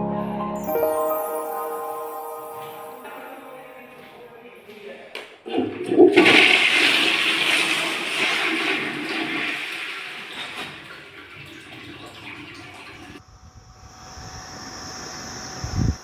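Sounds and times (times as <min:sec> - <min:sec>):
toilet flushing: 0:05.5 - 0:13.2.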